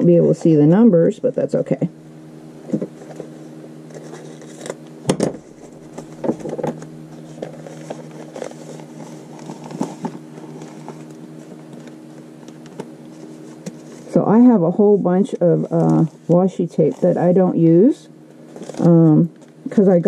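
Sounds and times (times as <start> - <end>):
steady low hum: 0.0 - 20.0
paper rustling and crinkling: 3.9 - 4.8, 5.4 - 14.1, 18.3 - 19.9.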